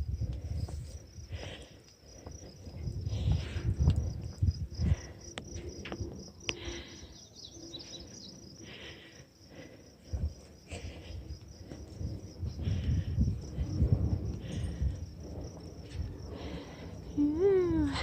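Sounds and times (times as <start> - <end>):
insects trilling: 0.0 - 18.0
low rumbling thumps: 11.4 - 17.2.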